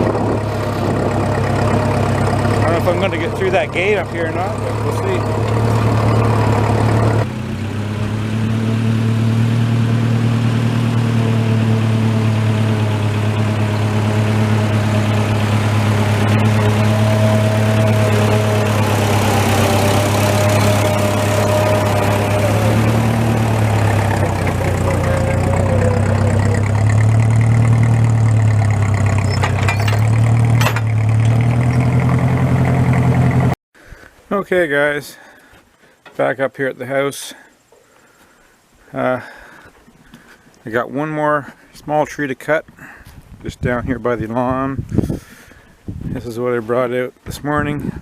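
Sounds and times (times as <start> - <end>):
tractor engine running: 0.0 - 33.6.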